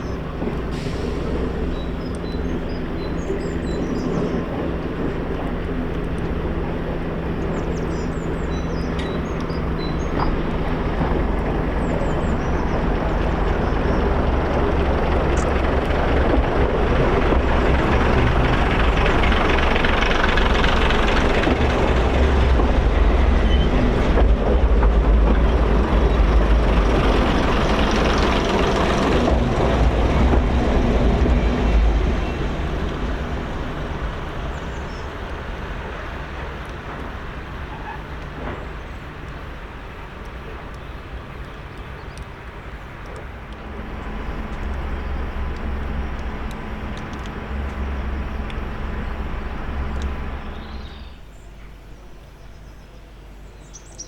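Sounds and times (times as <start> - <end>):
train going by: 0.0 - 54.0.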